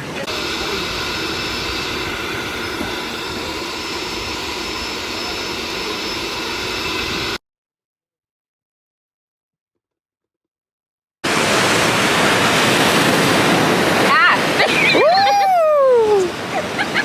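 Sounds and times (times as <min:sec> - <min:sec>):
faint steady tones: 0:00.0 - 0:07.4.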